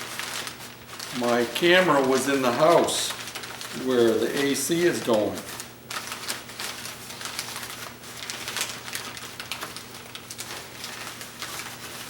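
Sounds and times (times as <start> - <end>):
packing material crinkling: 0.0 - 12.0.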